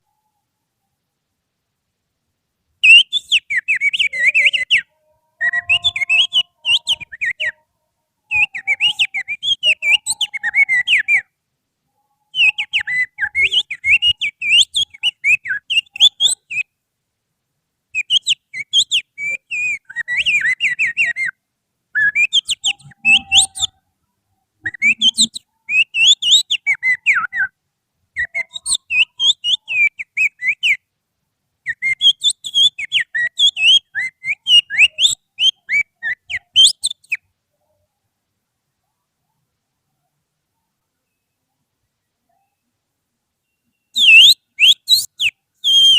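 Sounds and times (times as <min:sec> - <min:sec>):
finger whistling bird song: 0:02.8 - 0:07.6, 0:08.3 - 0:11.3, 0:12.3 - 0:16.7, 0:18.0 - 0:21.4, 0:22.0 - 0:23.7, 0:24.6 - 0:27.5, 0:28.2 - 0:30.8, 0:31.7 - 0:37.2, 0:43.5 - 0:45.9.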